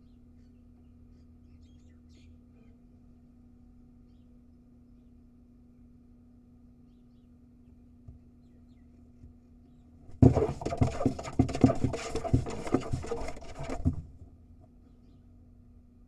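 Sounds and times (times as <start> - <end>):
owl scratching on wooden floor: 10.1 - 14.2.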